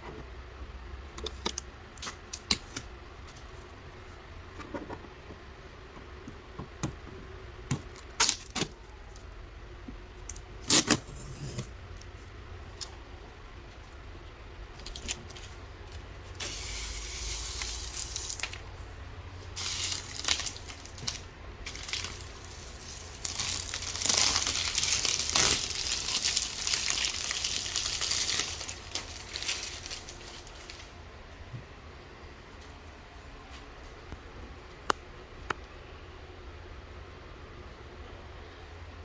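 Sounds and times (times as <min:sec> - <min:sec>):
packaging rustling and crinkling: 0:19.6 - 0:31.0.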